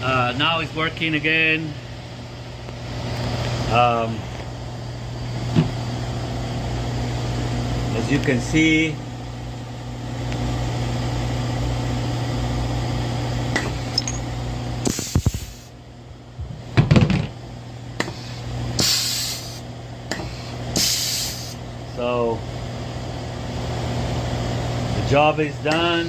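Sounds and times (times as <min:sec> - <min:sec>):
machine hum: 0:00.0 - 0:26.0
short air hisses: 0:14.8 - 0:15.7, 0:18.8 - 0:19.6, 0:20.8 - 0:21.6.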